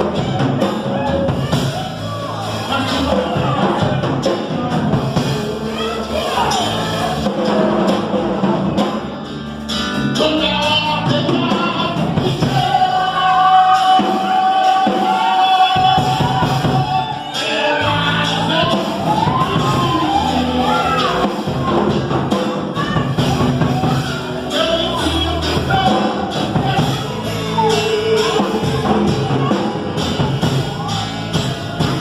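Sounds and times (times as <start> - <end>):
man singing gospel hymn: 0.0 - 9.2, 10.0 - 32.0
instrumental backing: 0.0 - 32.0.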